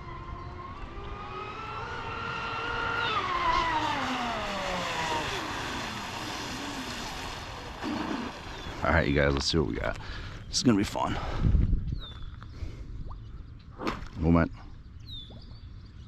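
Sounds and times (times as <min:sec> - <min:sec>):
electric boat motor whining: 0:00.0 - 0:09.1.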